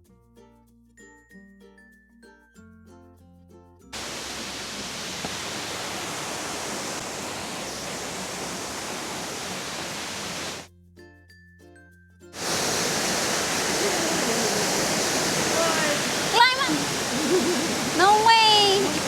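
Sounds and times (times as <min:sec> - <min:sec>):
light music with plucked notes: 0:00.0 - 0:03.9, 0:10.7 - 0:12.4
rushing water: 0:04.0 - 0:10.7, 0:12.4 - 0:19.0.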